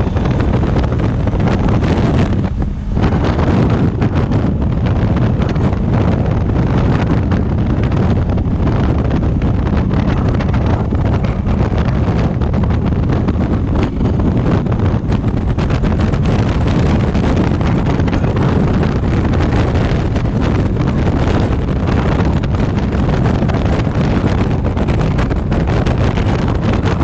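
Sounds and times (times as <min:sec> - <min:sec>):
motorcycle engine: 0:00.0 - 0:27.0
road noise: 0:00.0 - 0:27.0
wind buffeting microphone: 0:00.0 - 0:27.0.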